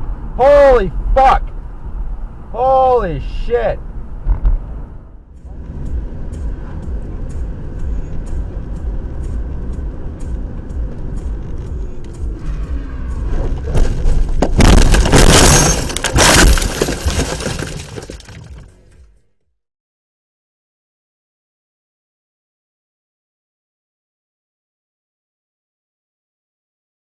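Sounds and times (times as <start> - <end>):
low vehicle rumble: 0.0 - 19.3
car crash impacts: 13.5 - 18.7
glass shattering: 14.5 - 18.7.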